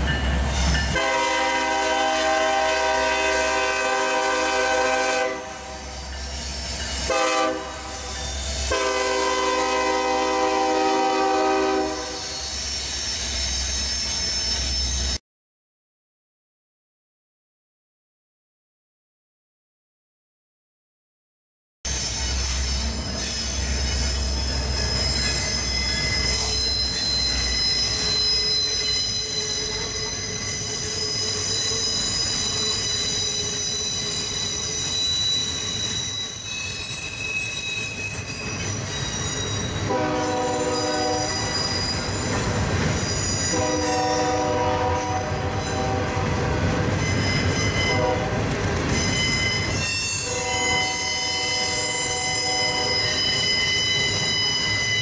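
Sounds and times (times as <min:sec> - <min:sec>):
locomotive horn: 0:00.9 - 0:05.9, 0:07.0 - 0:12.2, 0:39.8 - 0:41.5, 0:43.5 - 0:46.8, 0:47.4 - 0:48.4, 0:49.6 - 0:53.2
wheel squeal: 0:12.0 - 0:15.2, 0:21.9 - 0:44.2, 0:46.9 - 0:48.0, 0:48.8 - 0:55.0
train rumble: 0:38.0 - 0:55.0.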